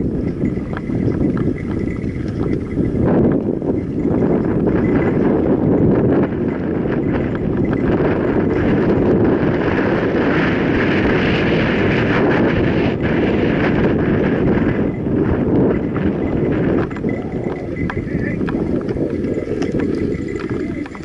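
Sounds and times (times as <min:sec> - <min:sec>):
bike rattling over bumps: 0:00.0 - 0:21.0
wind rushing on microphone: 0:00.0 - 0:21.0
tyres rolling on dirt: 0:16.4 - 0:21.0.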